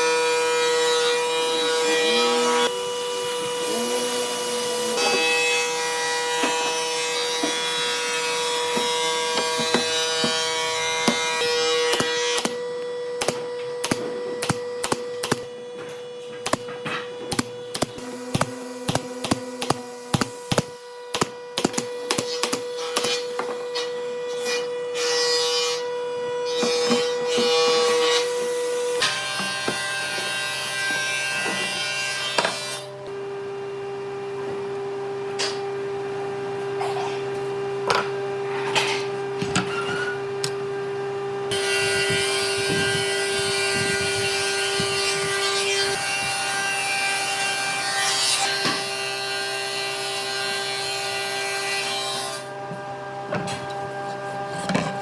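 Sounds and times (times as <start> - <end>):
machine hum: 7.7 - 23.4.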